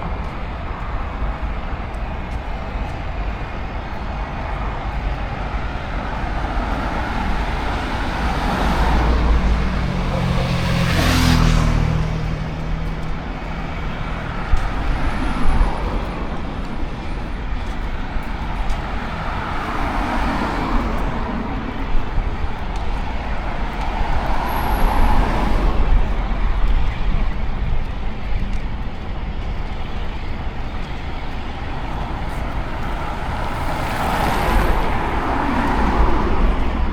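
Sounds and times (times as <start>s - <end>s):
cars passing: 0.0s - 36.9s
vehicle engine drone passing close: 6.8s - 14.3s.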